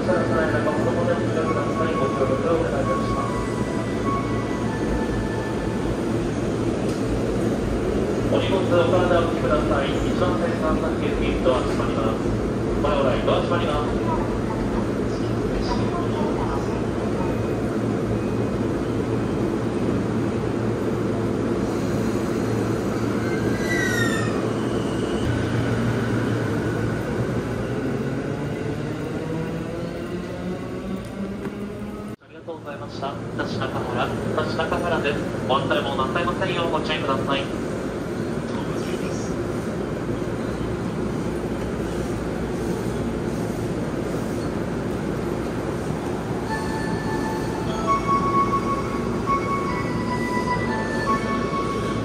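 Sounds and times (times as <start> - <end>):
electric train running past: 0.0 - 32.2, 32.8 - 52.0
train brake squeal: 21.7 - 25.3.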